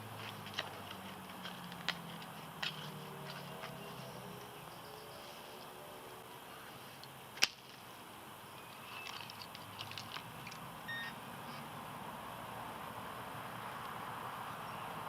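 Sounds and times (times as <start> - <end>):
faint road traffic: 0.0 - 15.0
short beep: 10.9 - 11.2.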